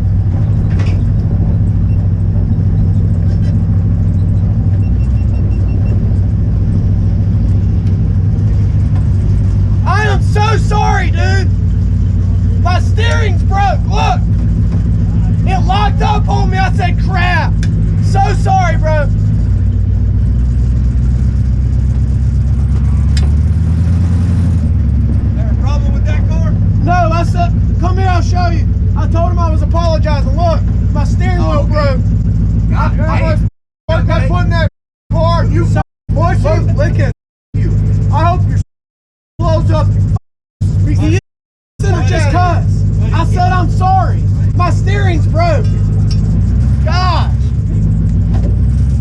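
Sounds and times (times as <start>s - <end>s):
race car engine idling: 0.0s - 23.8s, 24.6s - 38.6s, 39.4s - 41.2s, 41.8s - 48.8s
faint short beeps: 4.2s - 6.0s.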